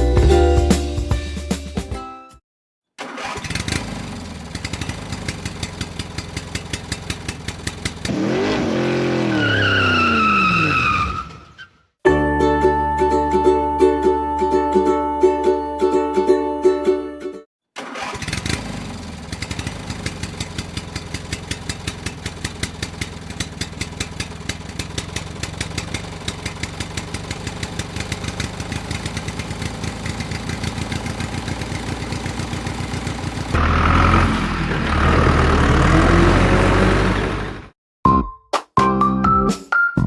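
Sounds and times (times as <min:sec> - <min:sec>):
small engine running: 0:03.2 - 0:09.2, 0:17.8 - 0:37.7.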